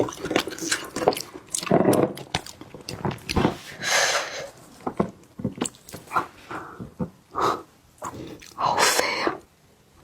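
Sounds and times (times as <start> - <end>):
person chewing with wet smacks: 0.0 - 3.4.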